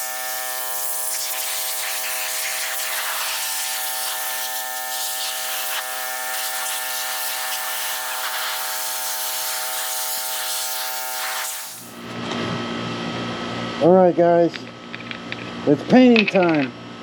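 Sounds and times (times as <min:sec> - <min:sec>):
power tool motor whining: 0:00.0 - 0:12.2.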